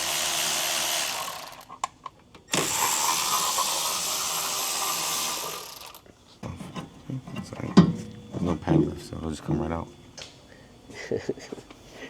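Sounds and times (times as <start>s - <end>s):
cordless power tool running: 0.0s - 1.7s, 2.5s - 6.0s.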